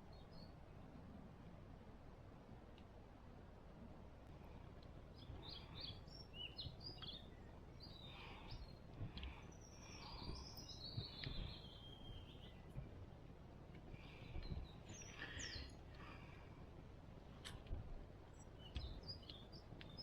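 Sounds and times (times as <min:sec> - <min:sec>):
faint background noise: 0:00.0 - 0:20.0
bird chirping: 0:14.4 - 0:15.8, 0:18.3 - 0:20.0.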